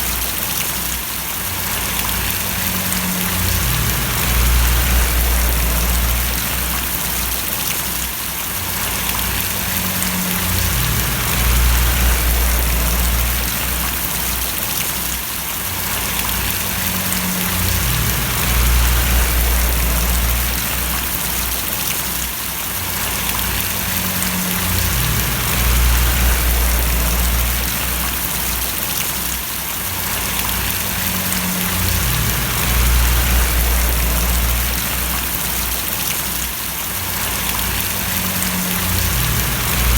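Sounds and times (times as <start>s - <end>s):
rain splashing: 0.0s - 39.9s
low rumble: 1.9s - 7.6s, 8.9s - 14.4s, 16.2s - 21.8s, 23.1s - 28.7s, 30.4s - 36.0s, 37.4s - 39.9s.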